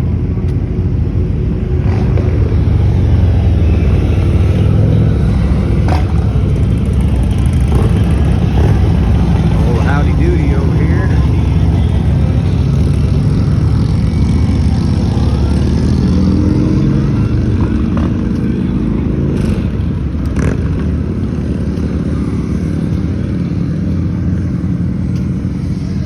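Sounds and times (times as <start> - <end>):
motorcycle engines rumbling: 0.0 - 26.0.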